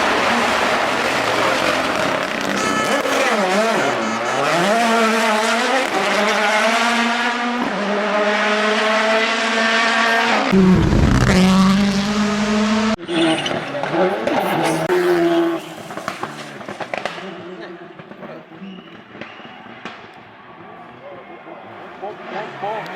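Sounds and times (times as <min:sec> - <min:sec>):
another car engine: 0:00.0 - 0:19.8
rally car engine revving: 0:00.0 - 0:19.8, 0:21.7 - 0:22.9
car passing with rumbling blast: 0:10.2 - 0:13.0.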